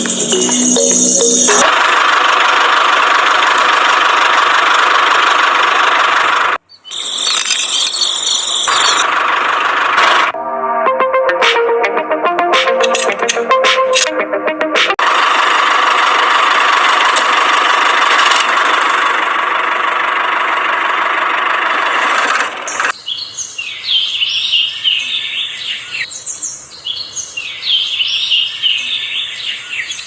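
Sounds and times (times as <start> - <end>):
birds chirping: 6.2 - 9.2, 22.6 - 30.0.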